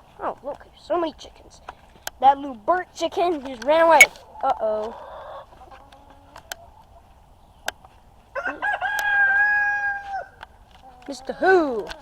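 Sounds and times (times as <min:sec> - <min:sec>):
rooster crowing: 0:08.4 - 0:10.4.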